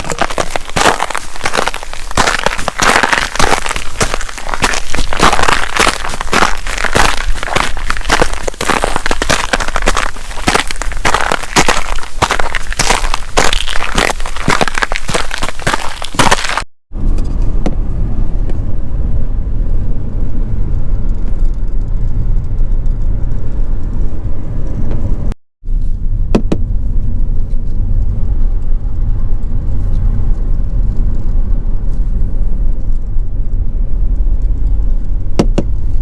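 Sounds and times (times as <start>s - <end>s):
car road and engine rumble: 17.0s - 36.0s.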